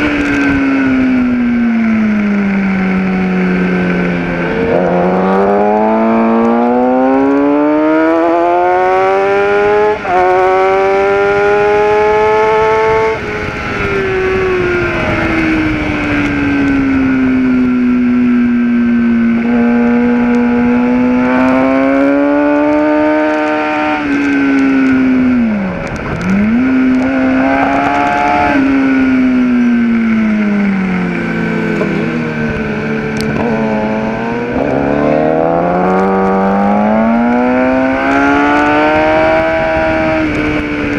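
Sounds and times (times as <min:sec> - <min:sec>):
motorcycle engine accelerating: 0:00.0 - 0:40.9
wind rush: 0:09.7 - 0:40.9.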